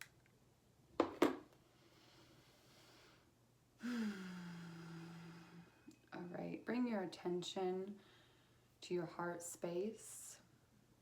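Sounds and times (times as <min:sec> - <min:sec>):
faint breathing: 0:01.6 - 0:06.1, 0:07.9 - 0:08.7
woman sighing: 0:03.8 - 0:06.0.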